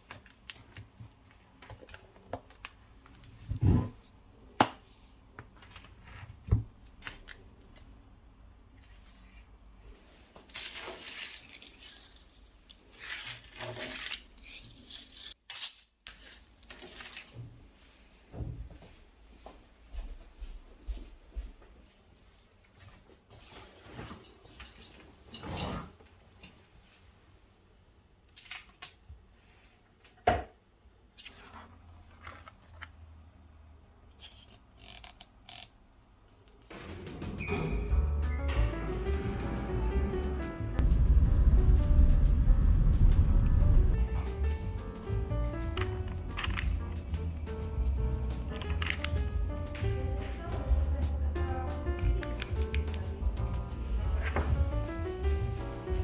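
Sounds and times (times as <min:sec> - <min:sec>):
rustling: 0:08.8 - 0:18.2.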